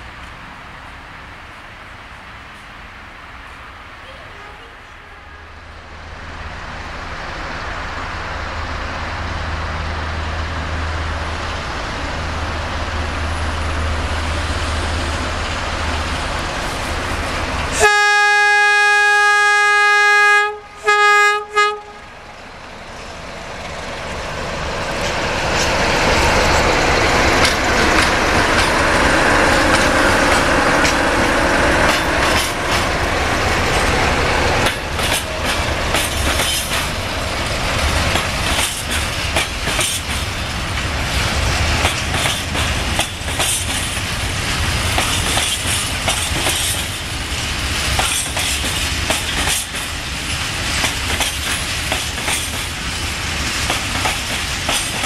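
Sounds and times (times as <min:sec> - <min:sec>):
diesel locomotive engine: 0:00.0 - 0:55.0
locomotive horn blasts: 0:17.8 - 0:22.2
train wheels clacking over rail joints: 0:23.5 - 0:55.0.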